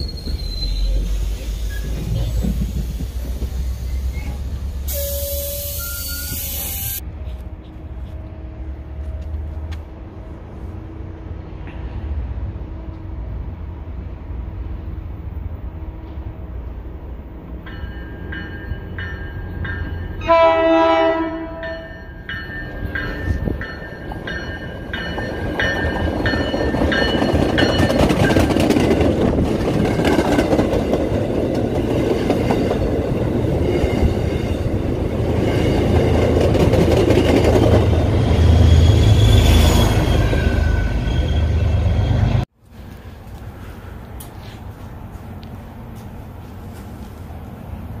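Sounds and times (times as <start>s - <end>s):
train coaches rumbling by: 0.0s - 48.0s
train bell ringing: 4.9s - 7.0s, 17.6s - 28.7s, 37.0s - 42.4s.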